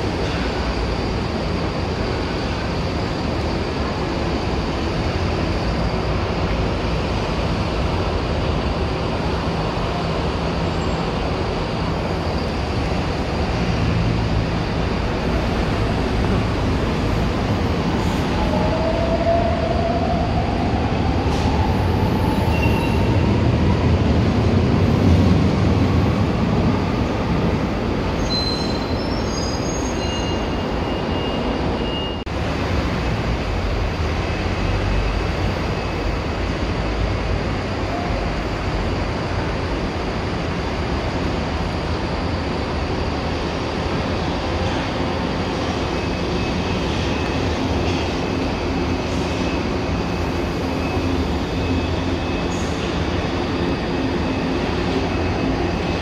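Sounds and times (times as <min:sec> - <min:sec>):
faint train whine: 0:00.0 - 0:56.0
train wheels rumbling on rail: 0:00.0 - 0:56.0
wheel squeals: 0:28.2 - 0:32.2.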